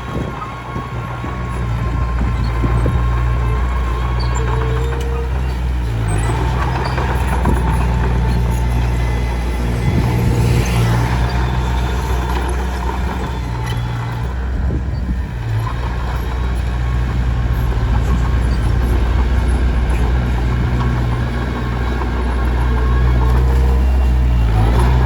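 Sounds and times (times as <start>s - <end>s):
bulldozer diesel engine running: 0.0s - 25.0s.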